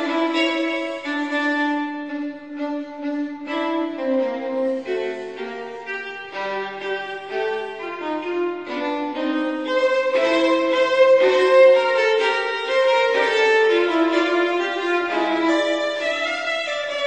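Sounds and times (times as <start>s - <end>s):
lower accompaniment: 0.0s - 17.0s
violin melody: 0.0s - 17.0s.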